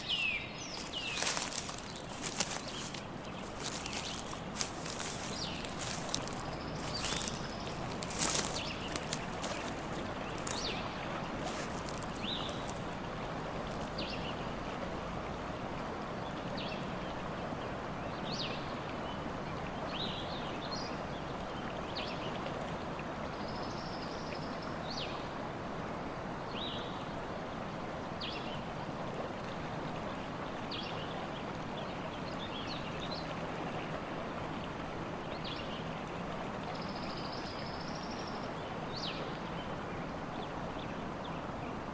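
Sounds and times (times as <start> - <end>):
steady rushing background noise: 0.8 - 10.8.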